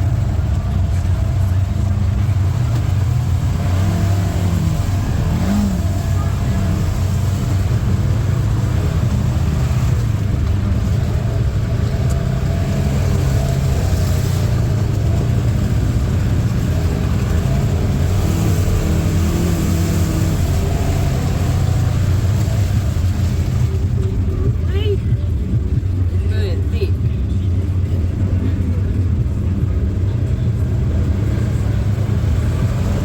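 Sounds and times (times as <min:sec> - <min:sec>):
atv engine running: 0:00.0 - 0:33.0.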